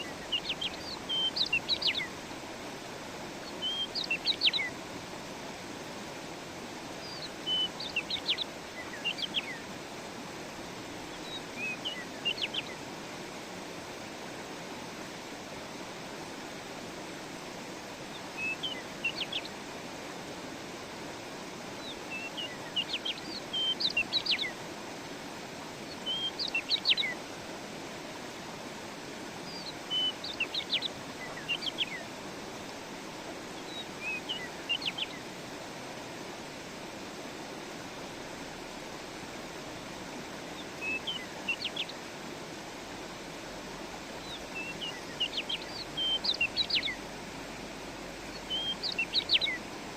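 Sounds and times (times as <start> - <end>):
songbird chirping: 0.0 - 2.2, 3.4 - 4.8, 7.0 - 9.7, 11.1 - 12.8, 18.1 - 19.6, 21.8 - 24.6, 25.8 - 27.2, 29.4 - 32.2, 33.6 - 35.3, 40.5 - 42.1, 44.1 - 47.1, 48.2 - 49.8
stream running: 0.0 - 49.9.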